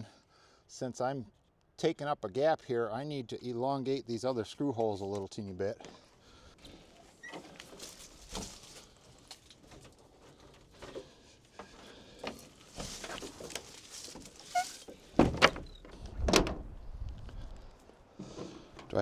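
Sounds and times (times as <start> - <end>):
loud thumps: 15.1 - 16.8.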